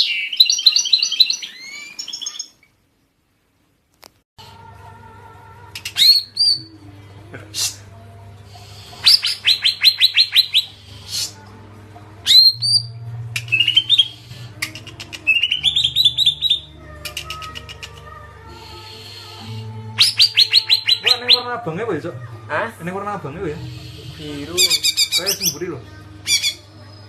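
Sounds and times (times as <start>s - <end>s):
songbird whistles and trills: 0.0s - 2.7s, 5.7s - 6.7s, 8.7s - 11.4s, 12.2s - 21.5s, 23.8s - 25.6s, 26.2s - 27.0s.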